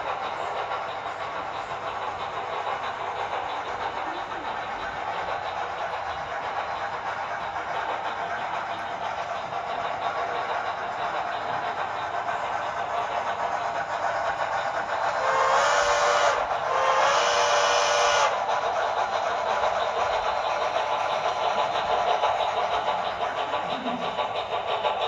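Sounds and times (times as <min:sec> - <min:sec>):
steam locomotive exhaust chuffing: 0:00.0 - 0:25.0
steam whistle blasts: 0:15.2 - 0:18.3.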